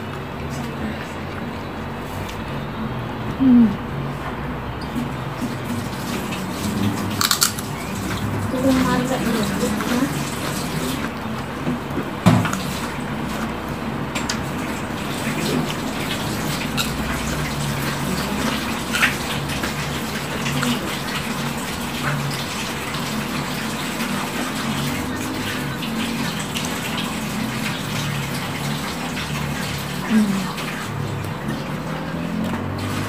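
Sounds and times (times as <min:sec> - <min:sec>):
chewing crunchy crackers: 0:06.1 - 0:08.5, 0:09.6 - 0:33.0.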